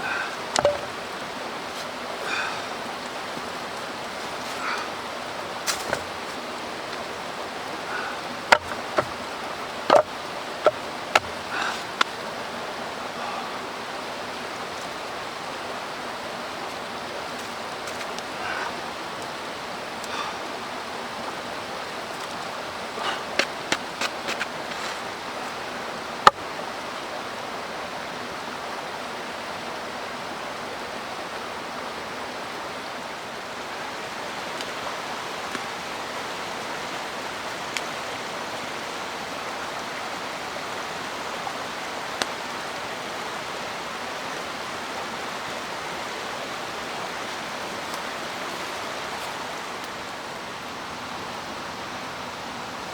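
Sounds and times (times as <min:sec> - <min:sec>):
mountain stream rushing: 0:00.0 - 0:52.9
sharp clicks and knocks: 0:09.9 - 0:11.4.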